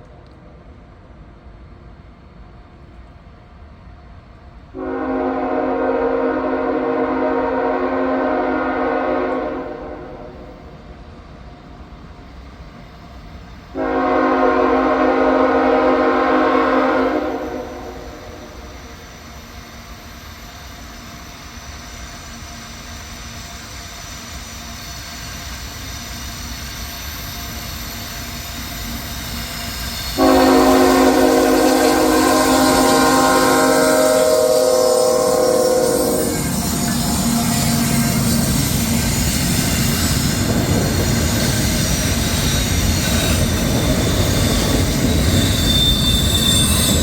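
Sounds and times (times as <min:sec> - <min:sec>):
train rumble: 0:00.0 - 0:47.0
locomotive air horn blasts: 0:04.8 - 0:10.5, 0:13.8 - 0:18.7, 0:30.2 - 0:39.1.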